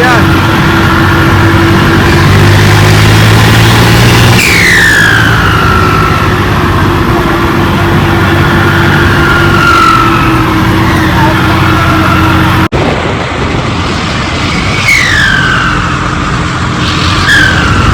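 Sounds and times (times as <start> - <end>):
diesel tractor engine: 0.0 - 17.9
turbo whistle: 4.4 - 6.4, 16.8 - 17.9.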